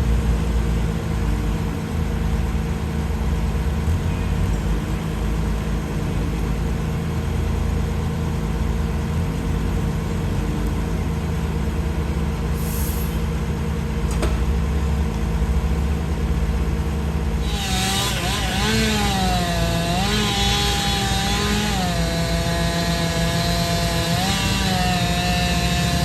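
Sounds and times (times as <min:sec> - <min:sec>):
heavy engine running: 0:00.0 - 0:26.0
air hissing: 0:12.6 - 0:13.3.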